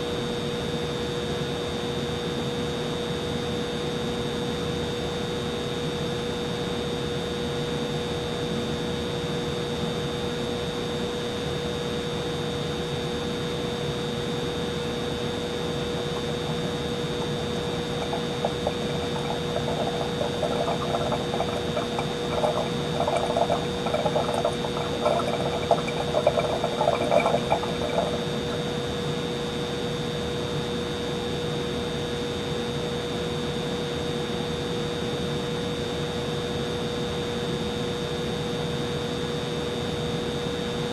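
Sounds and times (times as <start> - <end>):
humidifier humming: 13.0 - 32.2
water gurgling and trickling: 15.2 - 29.4.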